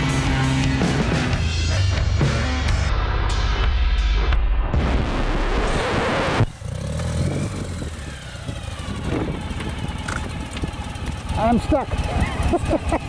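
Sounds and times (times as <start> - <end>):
motorcycle engine running: 0.0 - 1.8, 6.4 - 13.0
rock music: 0.0 - 7.3.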